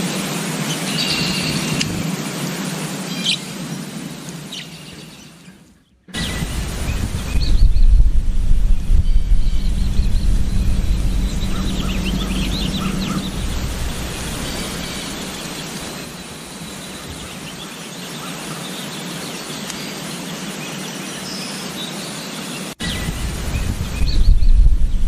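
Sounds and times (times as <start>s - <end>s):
birds chirping: 0.6s - 2.3s, 4.4s - 21.0s
wind rumbling on microphone: 0.9s - 2.4s, 6.1s - 17.8s, 22.8s - 25.0s
steady hiss: 6.1s - 20.6s, 22.6s - 25.0s.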